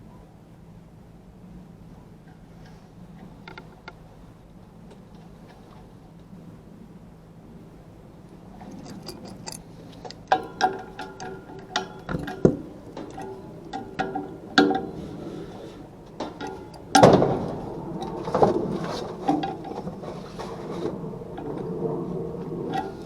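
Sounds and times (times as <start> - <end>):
metal tools clinking: 8.6 - 19.5
metal rattling clatter: 8.6 - 23.0.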